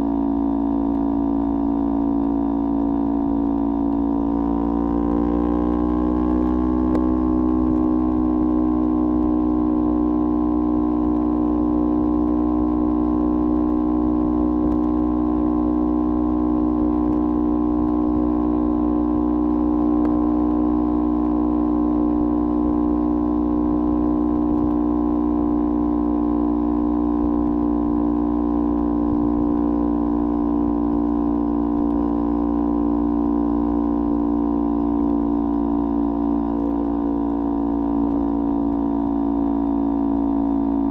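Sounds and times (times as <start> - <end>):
motorcycle engine droning: 0.0 - 40.9.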